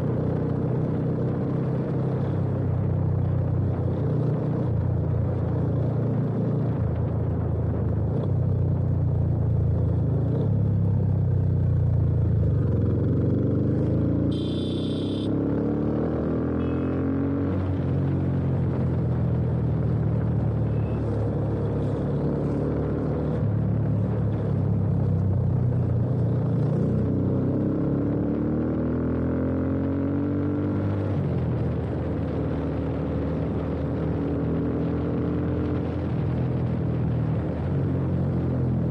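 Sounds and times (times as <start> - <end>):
wind and road noise: 0.0 - 38.9
motorcycle engine running: 11.7 - 17.0
high-pitched tone: 14.3 - 15.3.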